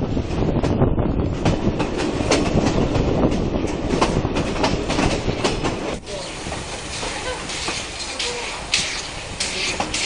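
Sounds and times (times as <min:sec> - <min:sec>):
train carriage rolling on track: 0:00.0 - 0:10.0
wheel clacks over rail joints: 0:01.4 - 0:10.0.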